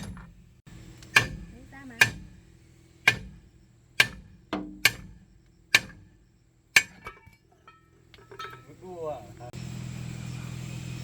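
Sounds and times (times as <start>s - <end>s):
hammer striking metal: 1.1s - 2.4s, 3.0s - 8.7s.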